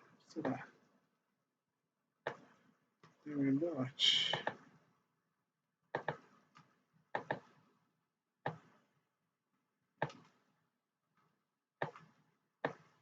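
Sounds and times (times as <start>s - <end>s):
computer mouse clicking: 6.0s - 7.6s, 10.0s - 10.4s, 11.8s - 12.9s.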